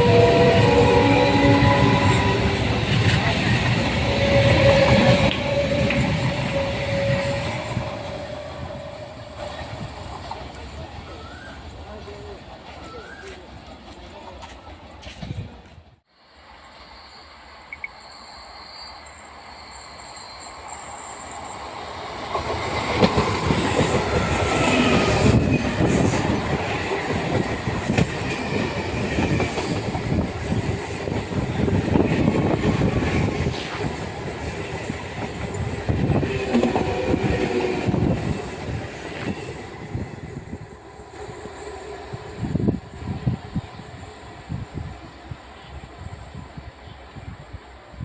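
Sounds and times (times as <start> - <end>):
wheel squeal: 16.6 - 21.8
train wheels clattering: 22.3 - 40.1.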